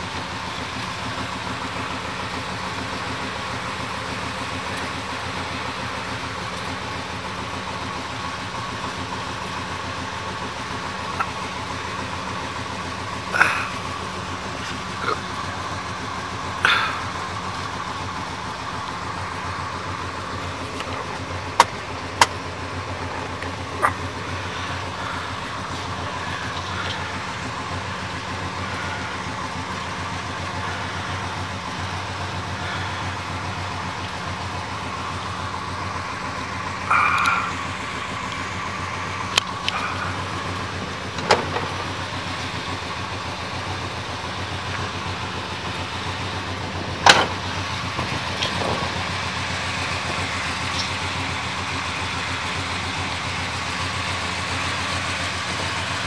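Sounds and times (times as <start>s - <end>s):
car engine idling: 0.0s - 56.0s
sharp clicks and knocks: 20.6s - 24.0s, 41.1s - 41.8s, 47.0s - 49.0s.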